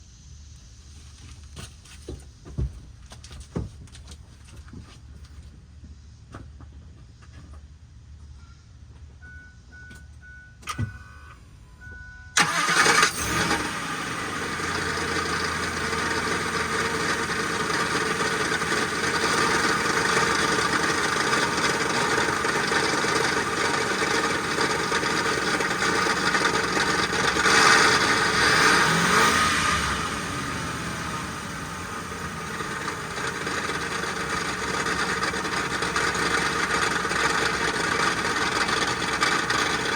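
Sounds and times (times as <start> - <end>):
car engine running with grinding: 12.4 - 39.9.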